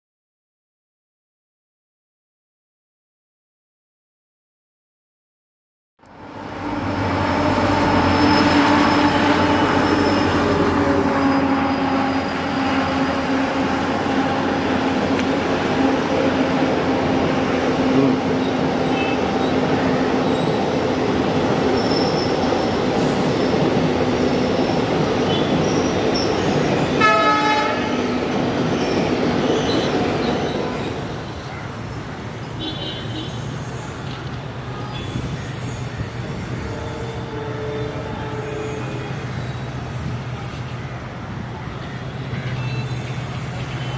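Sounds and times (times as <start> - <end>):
diesel locomotive engine drone: 6.0 - 43.9
train coaches clattering on rails: 7.3 - 31.9, 33.4 - 43.9
train horn blast: 27.0 - 28.2, 36.6 - 39.2.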